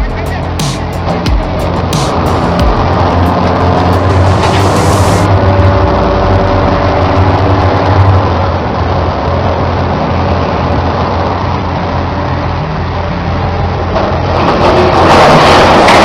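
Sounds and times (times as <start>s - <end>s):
engine-like rumble: 0.0s - 16.0s.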